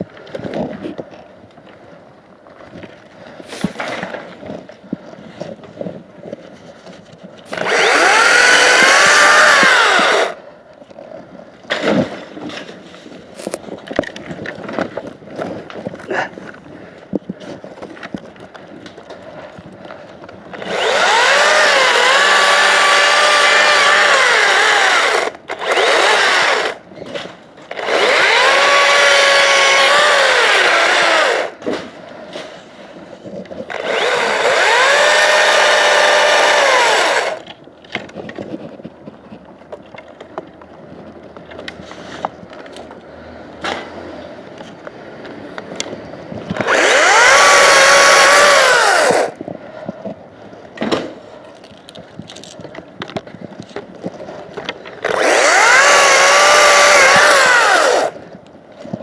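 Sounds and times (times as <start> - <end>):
chainsaw cutting wood: 7.4 - 10.4, 20.5 - 31.8, 33.6 - 37.5, 46.5 - 49.4, 54.6 - 58.4.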